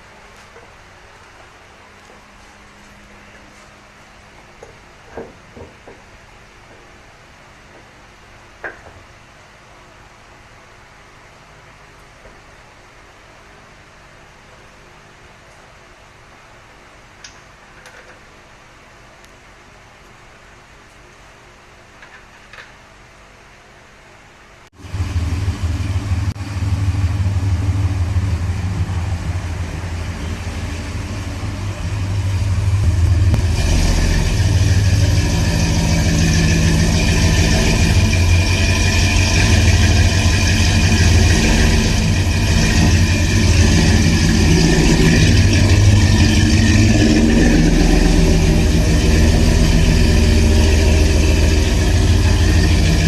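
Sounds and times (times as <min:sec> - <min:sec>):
engine cranking and running: 0:24.8 - 0:53.0.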